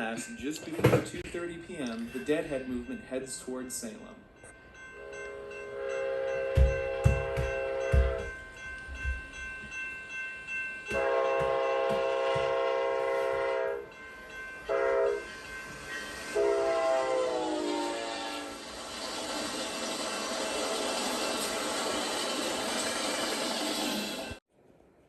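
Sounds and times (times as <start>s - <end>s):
passing train rumble: 0.0s - 24.4s
train air horn blasts: 5.0s - 8.3s, 10.9s - 13.9s, 14.7s - 15.3s, 16.3s - 18.7s.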